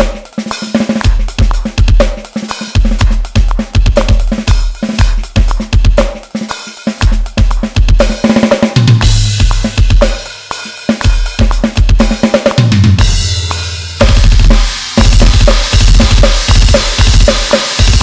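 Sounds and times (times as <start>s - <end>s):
electronic drum kit playing: 0.0s - 18.0s
cymbal crashes: 13.0s - 18.0s.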